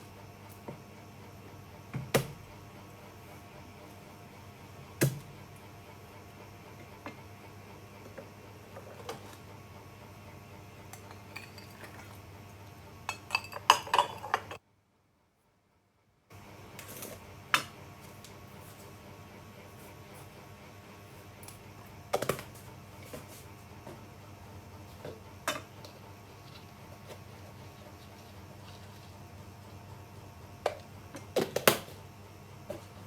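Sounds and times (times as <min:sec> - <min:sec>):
cookware knocking and clinking: 0:13.1 - 0:14.6.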